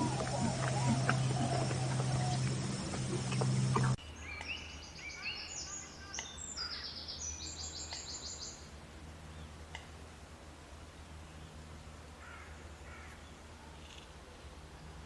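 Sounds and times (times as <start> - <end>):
small bird calling: 0.0 - 8.4.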